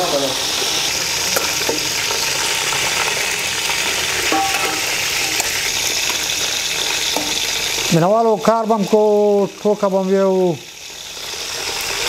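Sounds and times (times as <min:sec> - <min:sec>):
quails sizzling in hot oil: 0:00.0 - 0:12.0.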